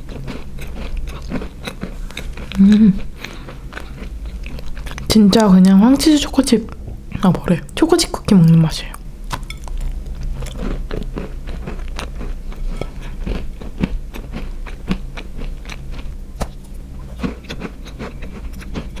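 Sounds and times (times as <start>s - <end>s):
cookie biting and chewing: 0.1s - 5.1s, 9.3s - 19.0s.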